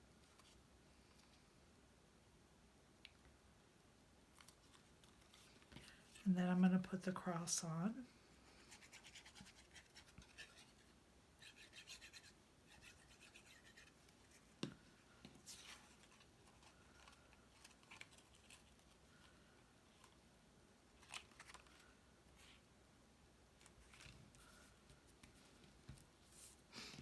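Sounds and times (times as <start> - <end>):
scratching and rubbing of cardstock: 8.6 - 14.5.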